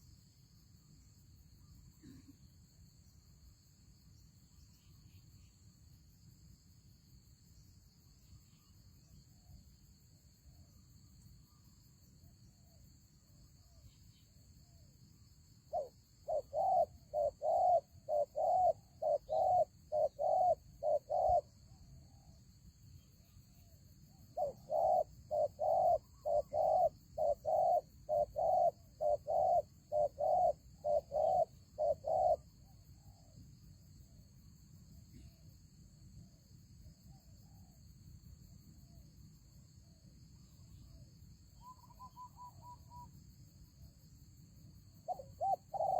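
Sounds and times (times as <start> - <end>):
dove cooing: 15.7 - 21.5, 24.4 - 32.5, 45.1 - 45.9.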